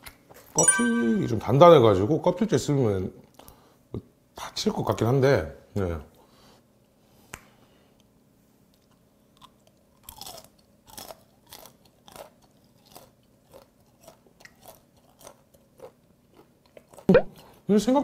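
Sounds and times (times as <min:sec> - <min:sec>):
shrimp shell crunching while chewing: 0:09.3 - 0:17.6.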